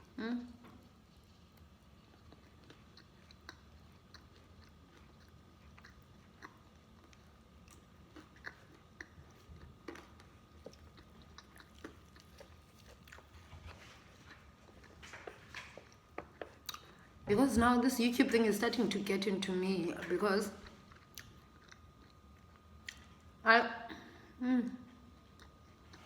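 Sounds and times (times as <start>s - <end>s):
chewing and crunching: 0.6s - 17.2s, 20.6s - 23.4s, 24.9s - 26.0s.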